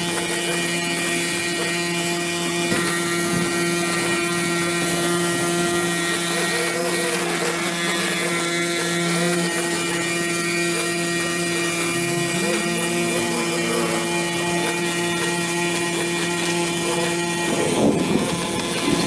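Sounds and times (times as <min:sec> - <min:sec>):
small engine droning: 0:00.0 - 0:19.0.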